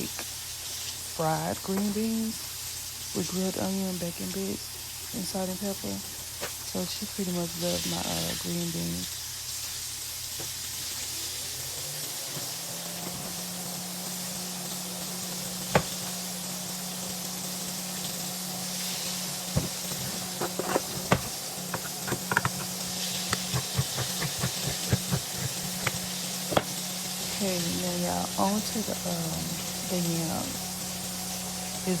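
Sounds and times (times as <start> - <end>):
food sizzling in a pan: 0.0 - 32.0
steady low hum: 19.4 - 32.0
utensil knocking against pan: 19.6 - 26.8.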